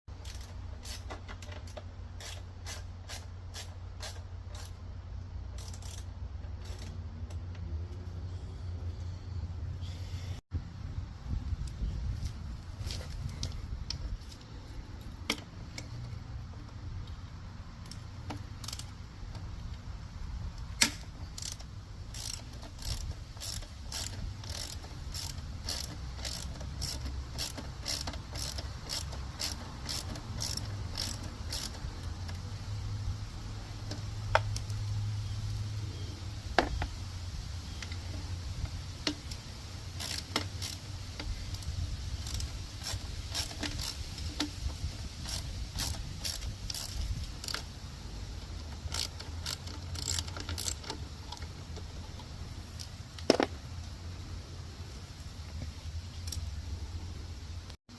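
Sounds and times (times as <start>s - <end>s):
hand tools clicking on metal: 20.6s - 32.6s, 37.7s - 53.5s.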